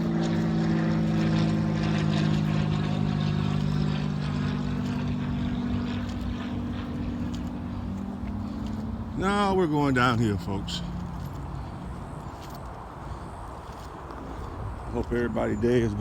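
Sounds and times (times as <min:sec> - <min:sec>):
engine drone: 0:00.0 - 0:16.0
low humming tones: 0:00.0 - 0:16.0.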